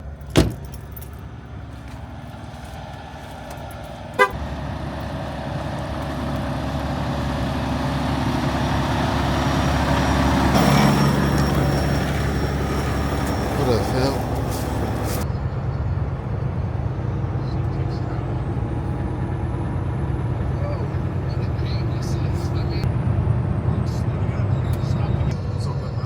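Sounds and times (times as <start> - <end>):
motor vehicle running: 0.0 - 26.0
steady horn-like tone: 4.2 - 4.4.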